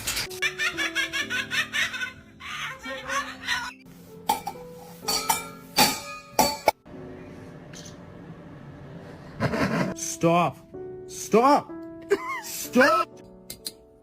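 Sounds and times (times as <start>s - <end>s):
background music: 0.1s - 14.0s
person laughing: 0.5s - 3.8s, 9.4s - 10.0s, 12.1s - 13.1s.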